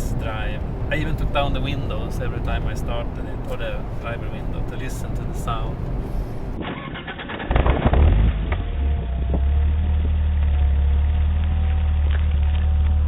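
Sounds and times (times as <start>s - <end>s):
car engine starting and idling: 0.0s - 13.0s.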